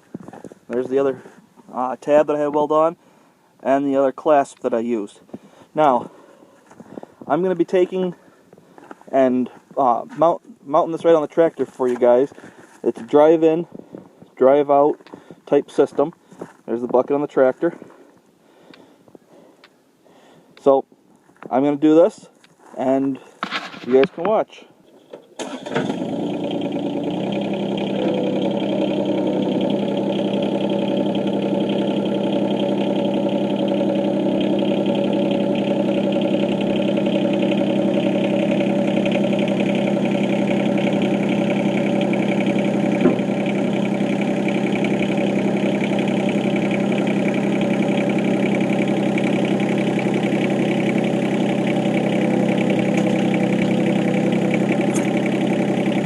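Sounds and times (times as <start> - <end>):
tractor diesel engine running: 0.0 - 3.1, 25.4 - 56.0.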